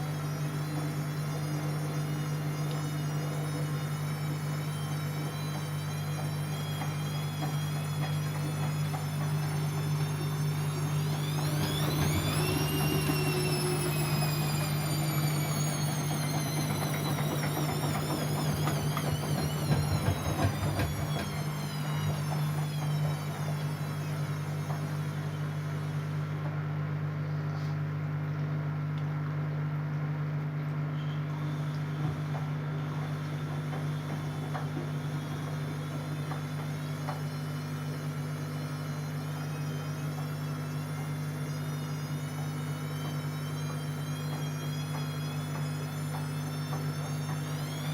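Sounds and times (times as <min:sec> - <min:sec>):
steady low hum: 0:00.0 - 0:29.8
washing machine motor whine: 0:00.0 - 0:47.9.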